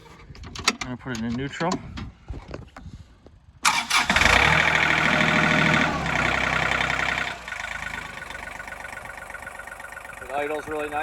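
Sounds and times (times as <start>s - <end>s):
diesel engine starting and idling: 3.6s - 11.0s.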